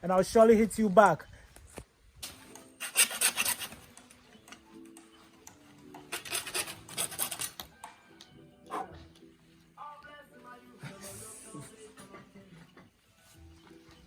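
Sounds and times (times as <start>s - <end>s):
background music: 2.1s - 14.0s
rapid rasping strokes: 2.4s - 4.1s, 5.9s - 7.7s.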